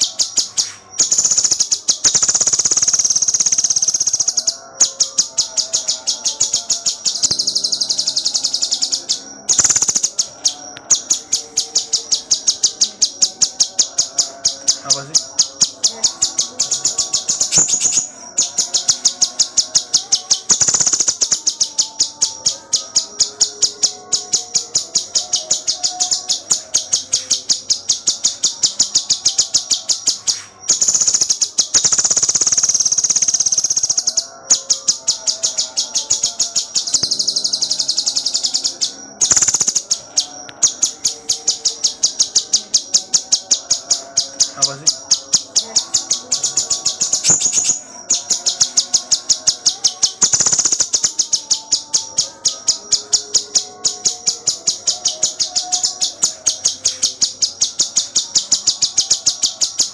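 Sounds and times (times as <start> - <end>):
songbird chirping and trilling: 0.0 - 59.9.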